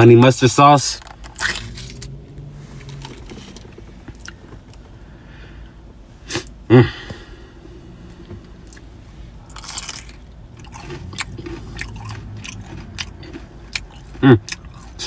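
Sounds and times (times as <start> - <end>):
person chewing: 8.6 - 15.0.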